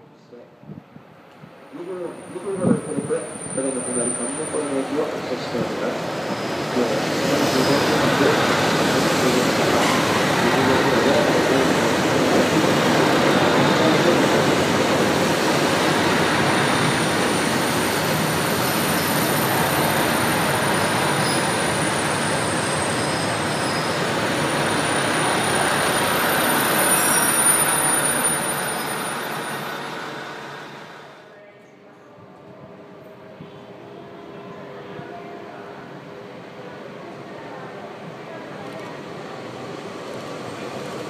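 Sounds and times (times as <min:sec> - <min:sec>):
train wheels on rail: 0:01.0 - 0:31.2.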